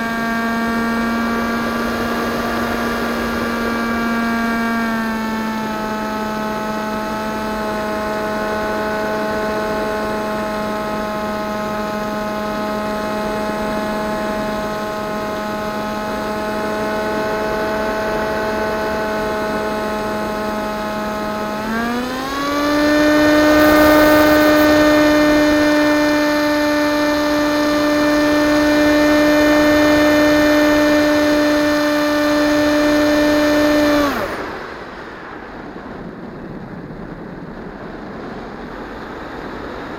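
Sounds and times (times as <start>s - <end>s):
model plane motor whine: 0.0s - 35.0s
rush of air: 21.7s - 26.7s.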